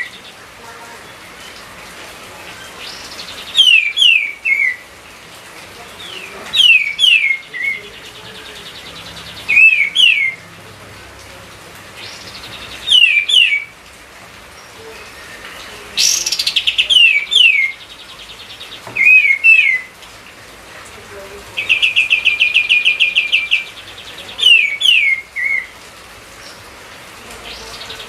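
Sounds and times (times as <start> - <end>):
bird whistled song: 2.8 - 4.8, 6.6 - 7.8, 9.5 - 10.4, 12.1 - 13.7, 18.9 - 19.9, 24.4 - 25.7.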